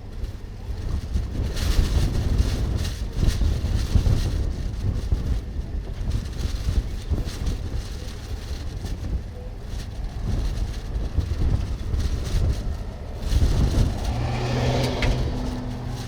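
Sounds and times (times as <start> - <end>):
wind buffeting microphone: 0.0 - 16.0
vehicle engine humming: 4.6 - 16.0.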